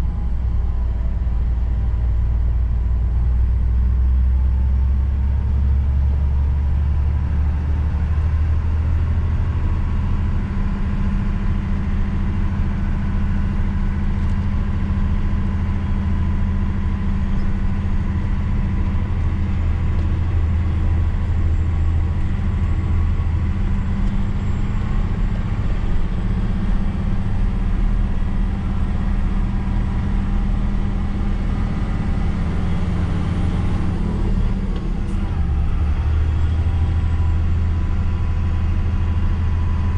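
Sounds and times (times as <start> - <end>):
diesel truck engine drone: 0.0 - 39.9.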